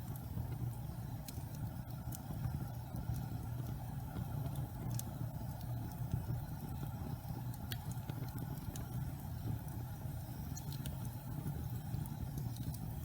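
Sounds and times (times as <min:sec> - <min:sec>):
burning logs crackling and popping: 0:00.0 - 0:13.0
flames rumbling: 0:00.0 - 0:13.0.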